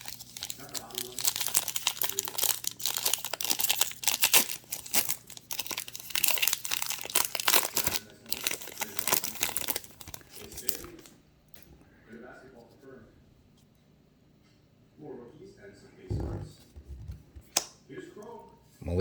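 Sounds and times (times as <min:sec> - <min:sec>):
plastic wrapper crinkling and tearing: 0:00.0 - 0:11.1.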